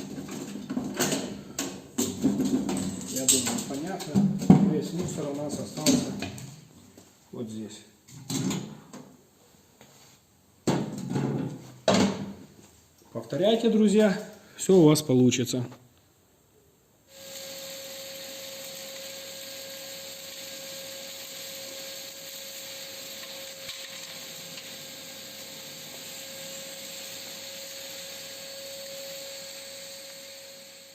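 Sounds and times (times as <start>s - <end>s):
vacuum cleaner running: 17.1s - 30.9s.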